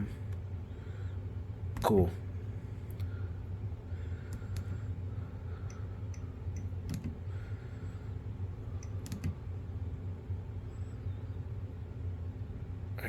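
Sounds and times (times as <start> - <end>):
low hum: 0.0 - 13.0
thermostat clicking: 5.7 - 7.2, 8.8 - 9.4.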